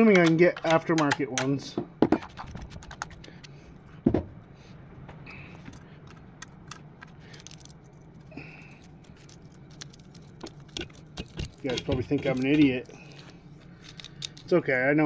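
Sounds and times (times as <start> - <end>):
metallic clicks and scrapes: 5.6 - 14.8.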